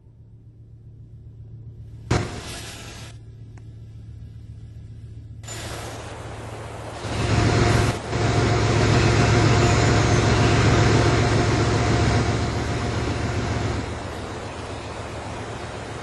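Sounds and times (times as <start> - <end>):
train passing: 6.2 - 16.0.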